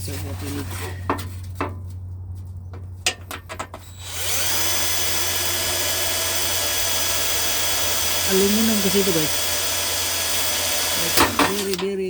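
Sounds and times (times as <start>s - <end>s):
electric drill drilling into metal: 3.8s - 11.8s.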